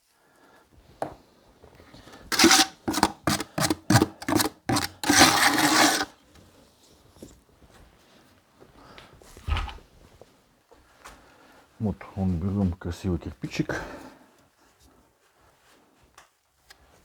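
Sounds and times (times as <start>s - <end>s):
trowel scraping brick and mortar: 2.2s - 6.1s.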